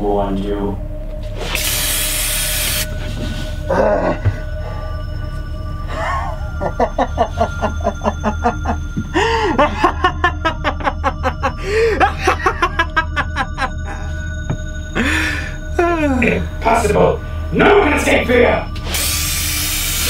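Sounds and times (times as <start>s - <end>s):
low background music drone: 0.0s - 20.0s
man laughing: 3.7s - 4.4s, 5.9s - 14.2s.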